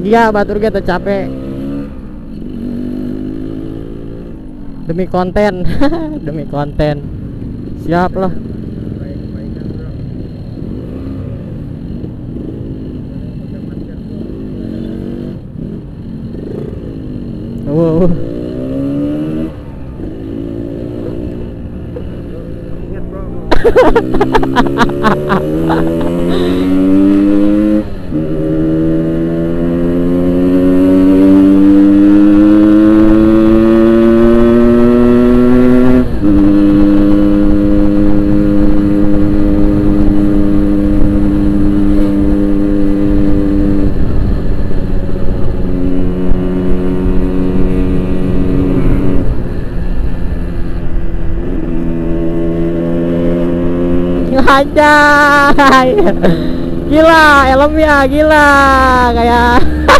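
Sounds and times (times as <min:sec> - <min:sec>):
motorcycle engine accelerating through gears: 0:00.0 - 0:59.9.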